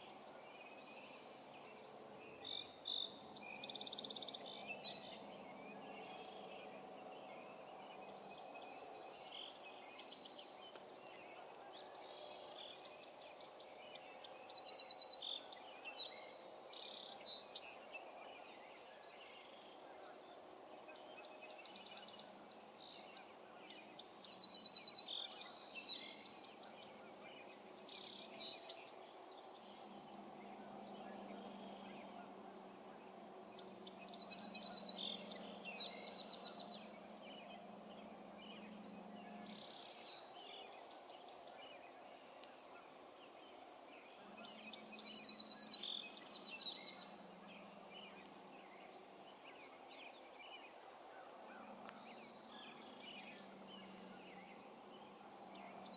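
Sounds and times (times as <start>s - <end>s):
faint low hum: 0.0s - 55.9s
songbird singing: 0.0s - 55.9s.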